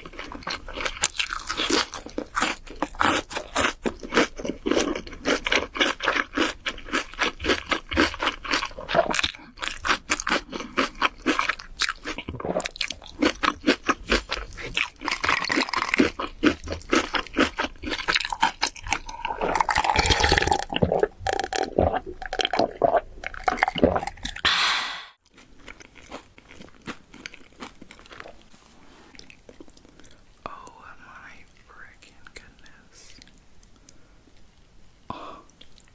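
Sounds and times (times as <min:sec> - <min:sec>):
person crunching food: 0:00.0 - 0:28.5, 0:29.1 - 0:30.6
soft mouth sounds: 0:29.1 - 0:34.0.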